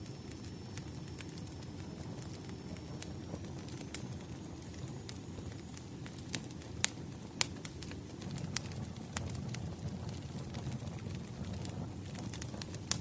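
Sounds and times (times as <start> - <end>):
firewood crackling and popping: 0.0 - 13.0
low rumble of flames: 0.0 - 13.0.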